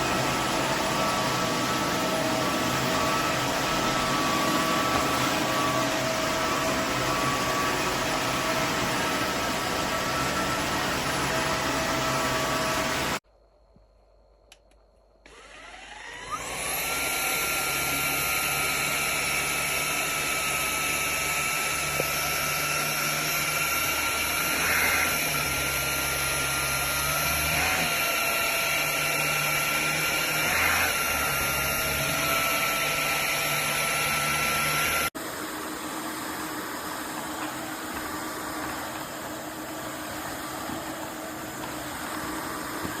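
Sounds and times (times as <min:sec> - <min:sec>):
vacuum motor whine: 0:00.0 - 0:13.2, 0:15.3 - 0:43.0.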